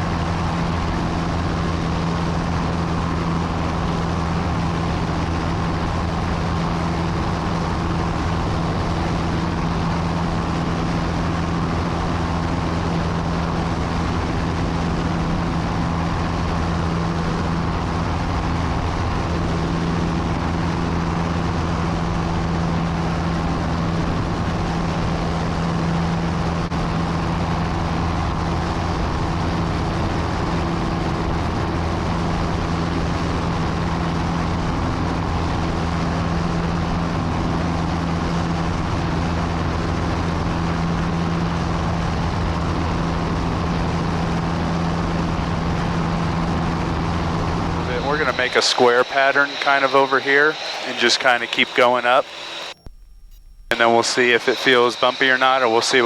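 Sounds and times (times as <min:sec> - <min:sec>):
small airplane engine drone: 0:00.0 - 0:56.0
airflow hiss: 0:47.8 - 0:52.8.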